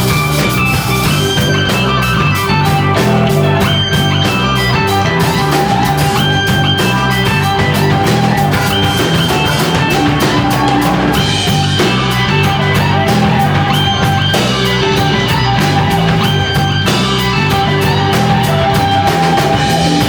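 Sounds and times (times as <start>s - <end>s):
drum kit beat: 0.0s - 20.0s
electric guitar: 0.0s - 20.0s.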